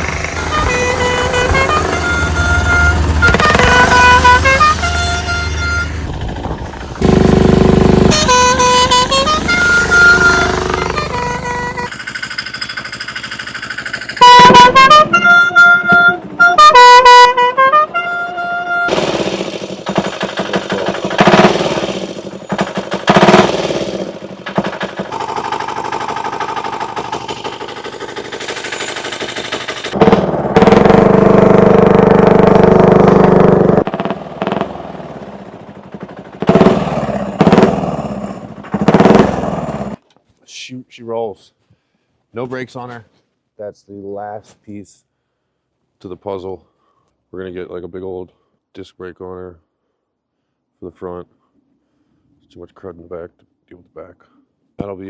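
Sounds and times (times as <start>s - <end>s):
motorcycle diesel engine running: 0.0s - 14.8s, 18.9s - 40.0s
vehicle horn blasts: 0.4s - 6.1s, 8.0s - 11.9s, 14.2s - 18.9s.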